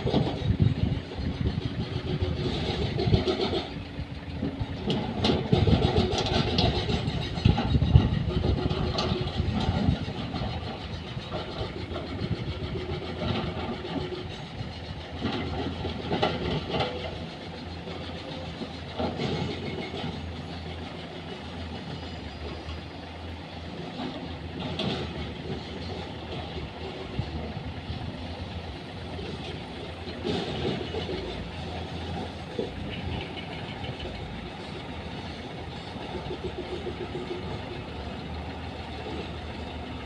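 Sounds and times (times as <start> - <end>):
metal clanks and knocks: 0.0 - 22.7, 23.8 - 28.0, 29.1 - 34.9
heavy diesel machinery running: 0.0 - 40.0.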